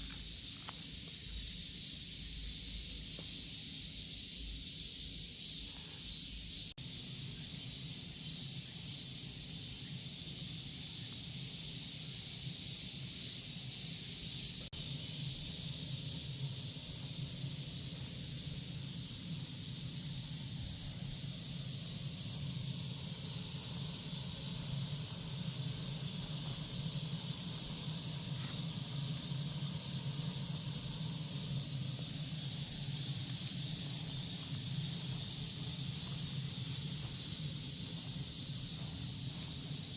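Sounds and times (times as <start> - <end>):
cicadas buzzing: 0.0 - 39.9
low steady hum: 13.5 - 39.9.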